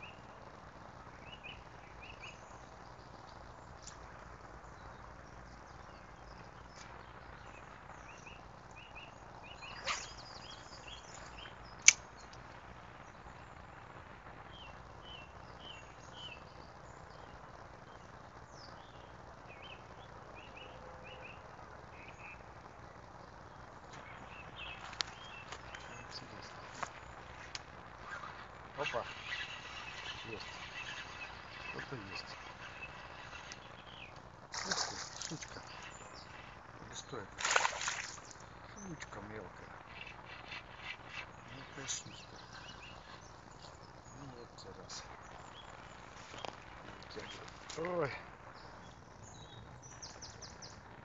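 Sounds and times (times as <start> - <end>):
small bird chirping: 1.2 - 12.4, 23.4 - 51.0.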